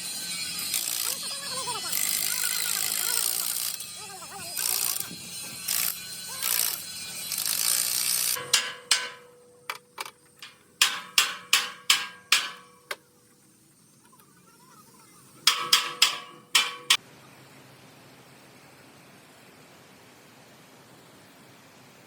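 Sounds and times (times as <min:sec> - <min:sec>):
hammer striking metal: 0:08.4 - 0:09.8, 0:10.4 - 0:13.0, 0:15.5 - 0:17.0.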